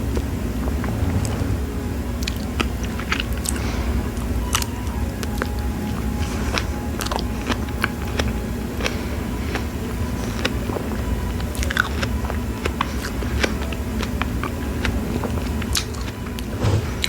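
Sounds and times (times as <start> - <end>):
steady low hum: 0.0 - 17.0
close chewing with mouth clicks: 6.2 - 16.2.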